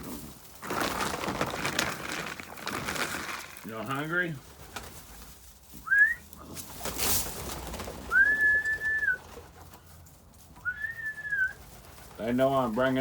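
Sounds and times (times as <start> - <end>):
person whistling: 5.9 - 6.2, 8.1 - 9.2, 10.7 - 11.5.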